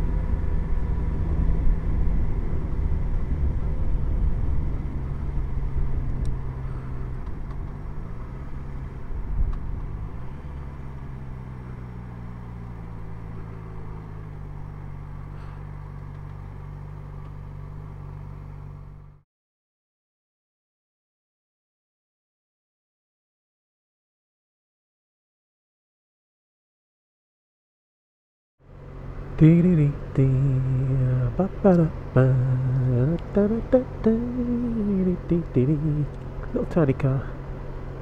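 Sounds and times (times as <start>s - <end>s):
motorcycle engine running: 0.0s - 19.2s.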